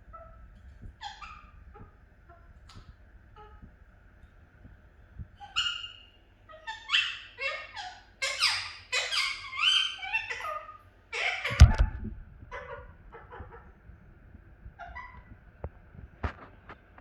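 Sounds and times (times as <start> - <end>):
budgerigar chattering: 5.4 - 11.8.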